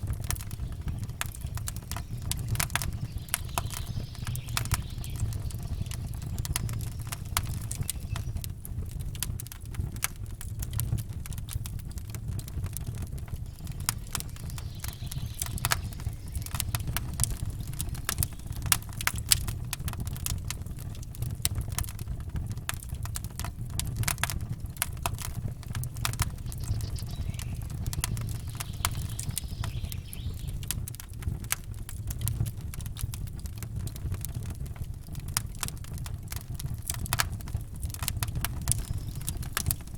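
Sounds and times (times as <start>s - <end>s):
campfire crackling and popping: 0.0s - 39.9s
low rumble: 12.8s - 20.5s, 24.5s - 30.7s.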